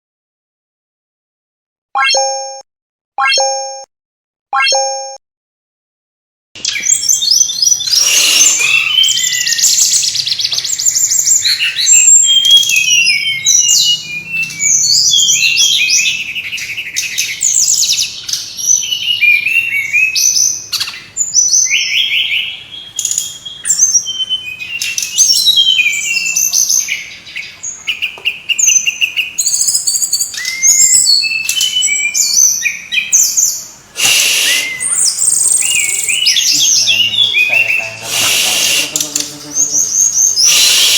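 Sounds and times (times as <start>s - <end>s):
flycatcher singing: 6.7s - 40.9s.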